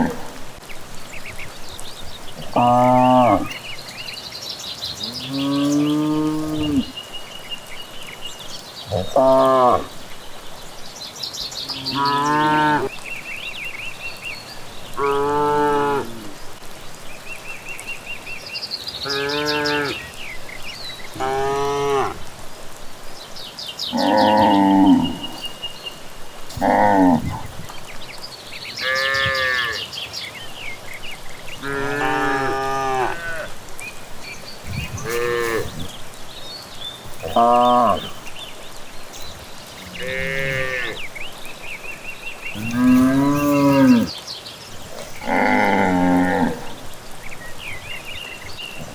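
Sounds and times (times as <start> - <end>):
birds chirping: 0.0 - 48.9
cattle mooing: 31.6 - 33.5, 34.9 - 35.9, 37.1 - 38.2, 39.8 - 41.0, 42.5 - 44.1, 45.0 - 46.8.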